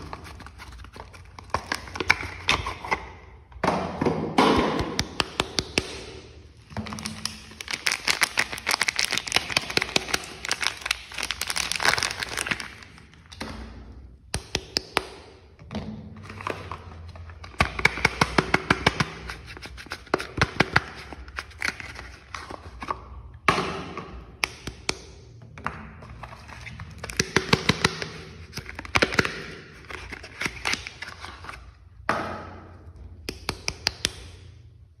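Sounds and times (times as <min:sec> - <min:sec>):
tapping and clicking on soap bars: 0:04.4 - 0:06.2, 0:32.9 - 0:34.5.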